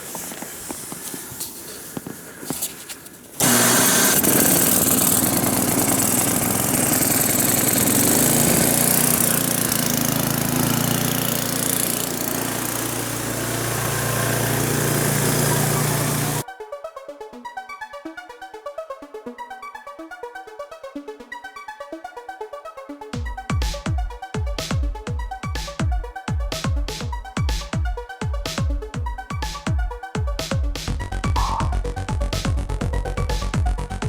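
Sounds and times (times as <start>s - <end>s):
snowblower engine running: 3.4s - 16.4s.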